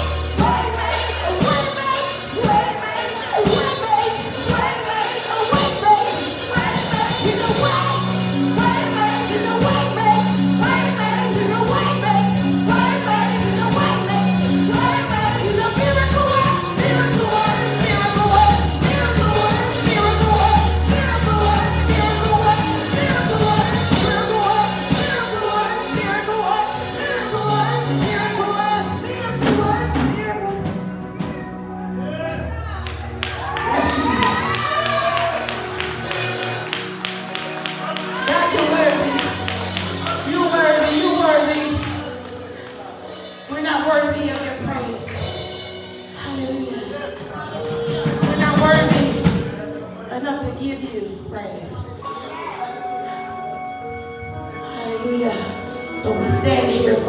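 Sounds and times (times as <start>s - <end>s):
congregation singing over a band: 0.0s - 32.2s
sustained bass notes: 0.0s - 42.6s.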